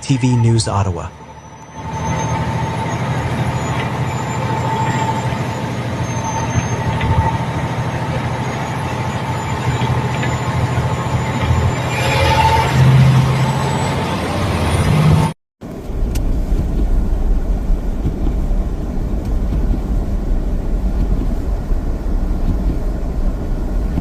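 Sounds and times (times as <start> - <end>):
thin steady whine: 0.0 - 13.8
heavy vehicle engine rumbling: 0.0 - 24.0.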